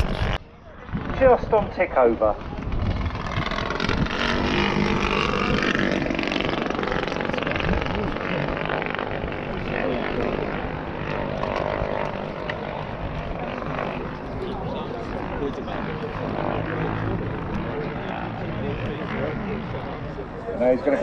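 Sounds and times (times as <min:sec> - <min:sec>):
model aircraft engine idling: 0:00.0 - 0:21.0
voices talking: 0:07.0 - 0:21.0.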